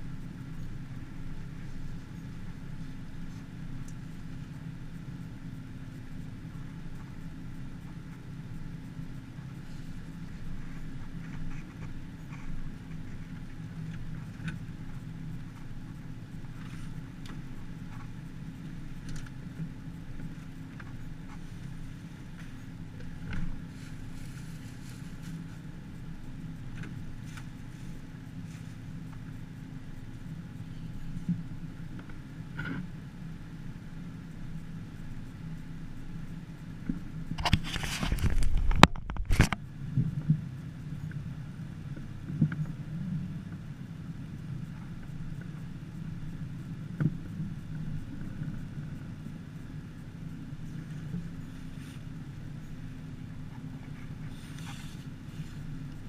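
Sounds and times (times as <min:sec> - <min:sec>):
engine droning: 0:00.0 - 0:56.0.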